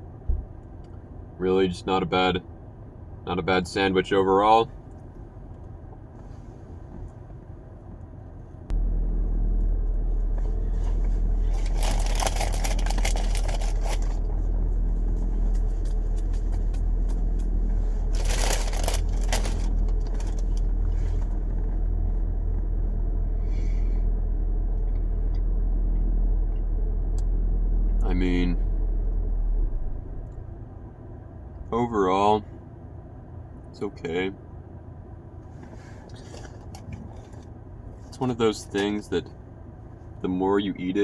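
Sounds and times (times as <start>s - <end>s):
loud low rumble: 8.7s - 30.3s
rustling and scraping: 9.6s - 22.7s, 35.4s - 38.2s.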